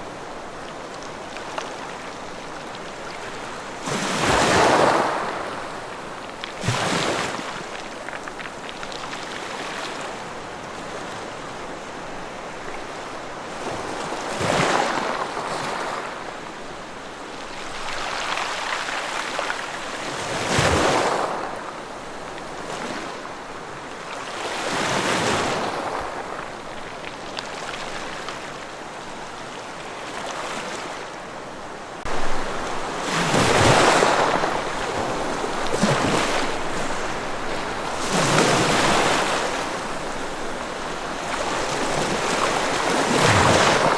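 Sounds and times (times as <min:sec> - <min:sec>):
ocean waves breaking on shore: 0:00.0 - 0:43.9.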